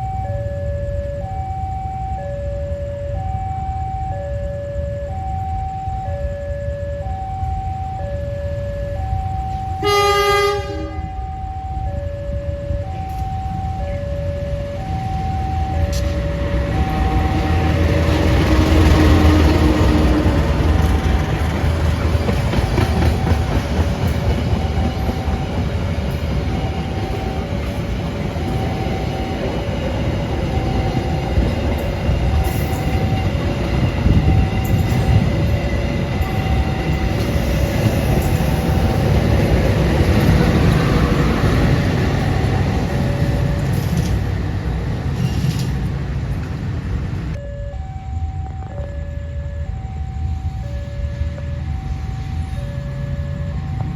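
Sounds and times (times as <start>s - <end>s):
level crossing alarm two-tone: 0.0s - 20.4s, 22.8s - 45.0s, 47.3s - 53.9s
train wheels rumbling over rails: 11.9s - 47.4s.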